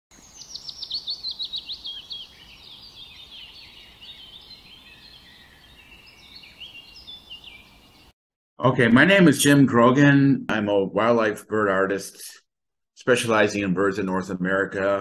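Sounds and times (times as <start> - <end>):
songbirds singing: 0.1 - 8.2.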